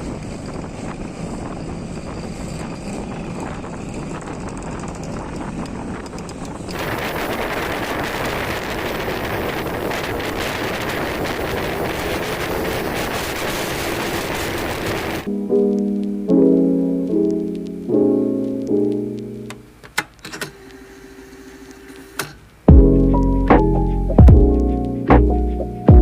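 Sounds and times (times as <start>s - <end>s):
wind on microphone: 0.0s - 15.3s
motorcycle moving: 0.0s - 19.8s
piano music: 15.0s - 19.8s, 22.7s - 26.0s.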